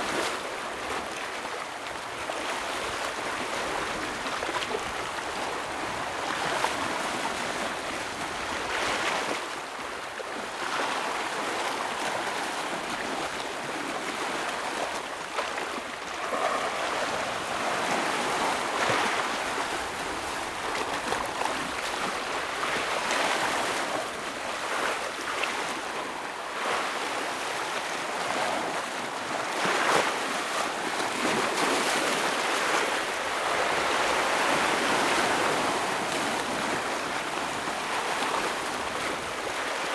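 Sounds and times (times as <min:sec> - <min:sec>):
ocean waves breaking over rocks: 0:10.8 - 0:39.9.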